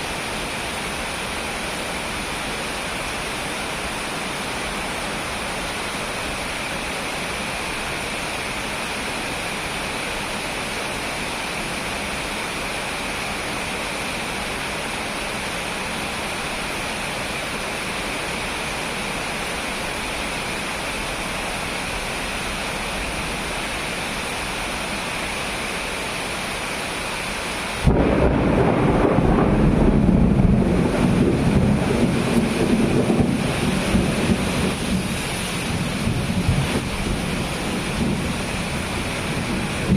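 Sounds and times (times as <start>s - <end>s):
heavy rain: 0.0s - 39.9s
thunderclap rumbling: 27.8s - 39.9s.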